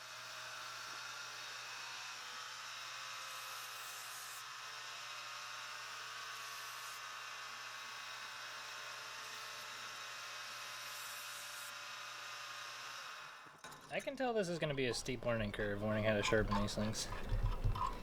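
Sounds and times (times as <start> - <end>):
knife grinding on sander belt: 14.6 - 18.0
belt sander running: 14.7 - 18.0.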